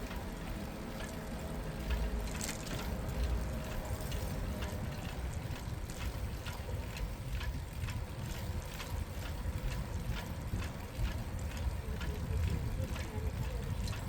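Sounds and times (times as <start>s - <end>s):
bicycle ticking: 0.0s - 14.0s
road rumble: 0.0s - 14.0s
wind on microphone: 4.4s - 14.0s.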